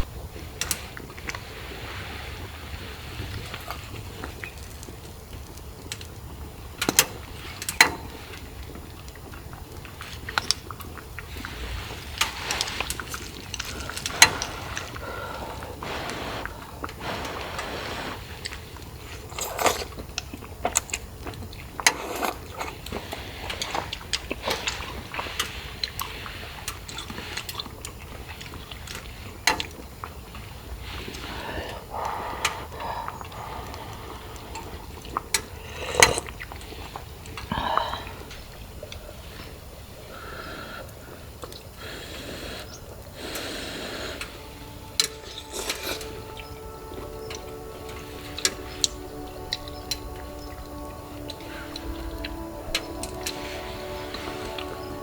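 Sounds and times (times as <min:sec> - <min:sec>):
rain hiss: 0:00.0 - 0:55.0.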